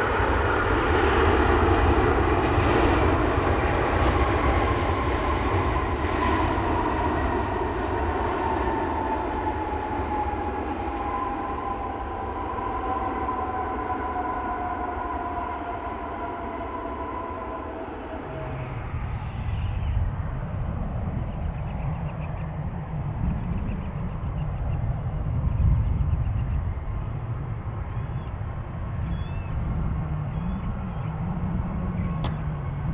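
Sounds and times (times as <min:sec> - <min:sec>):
jet engines whining: 0:00.0 - 0:20.7
aircraft rumble: 0:00.0 - 0:32.9.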